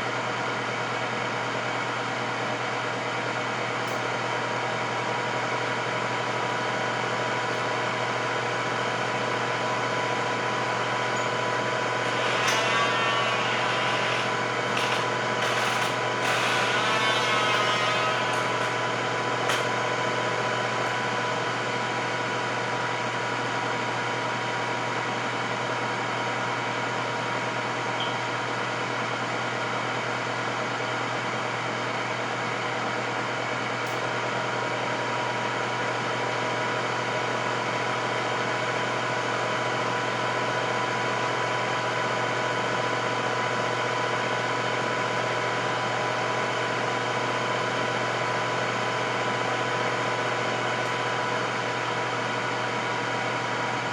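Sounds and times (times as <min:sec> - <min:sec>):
air fryer fan whirring: 0:04.0 - 0:22.8.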